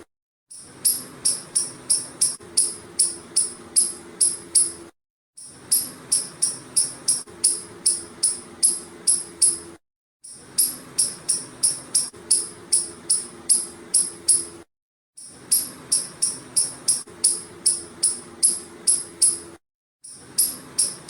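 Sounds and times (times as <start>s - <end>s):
squirrel chirping: 0.8s - 4.8s, 5.7s - 9.6s, 10.6s - 14.5s, 15.5s - 19.4s, 20.4s - 21.0s.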